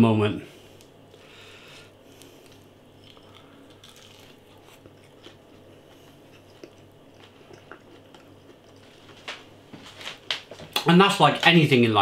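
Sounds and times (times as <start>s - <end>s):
low steady hum: 0.0s - 12.0s
chewing with crunching clicks: 2.2s - 8.9s.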